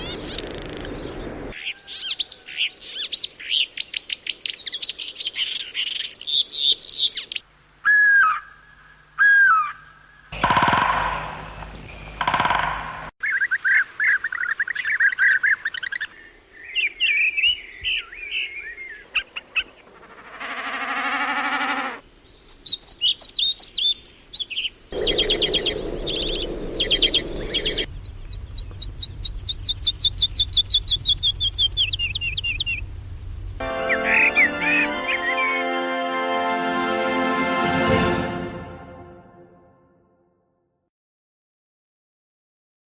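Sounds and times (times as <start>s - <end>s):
birds singing and calling: 0.0s - 8.6s, 9.2s - 35.6s
buzzy bird call: 33.6s - 36.3s.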